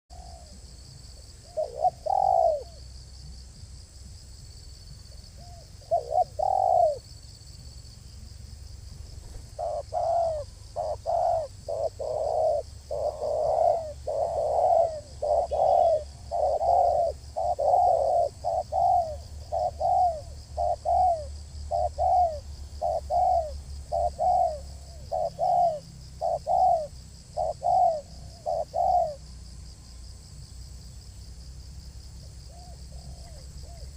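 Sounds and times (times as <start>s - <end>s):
dove cooing: 0.1s - 2.8s, 5.4s - 7.1s, 9.2s - 29.3s, 32.5s - 33.9s
faint high-pitched hiss: 0.1s - 33.9s.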